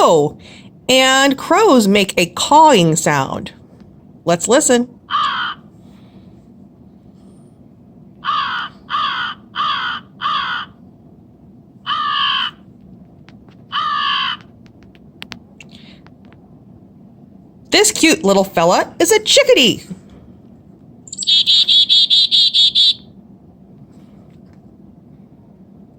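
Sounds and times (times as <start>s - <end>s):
crow cawing: 5.1s - 5.7s, 8.2s - 10.8s, 11.8s - 12.6s, 13.7s - 14.5s, 21.2s - 23.0s.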